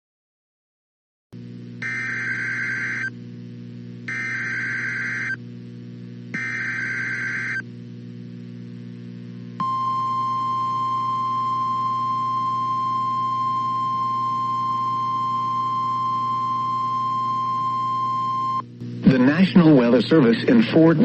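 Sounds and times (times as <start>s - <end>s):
low steady hum: 1.4s - 21.0s
steady alarm tone: 1.8s - 3.1s, 4.1s - 5.4s, 6.4s - 7.6s, 9.6s - 18.6s.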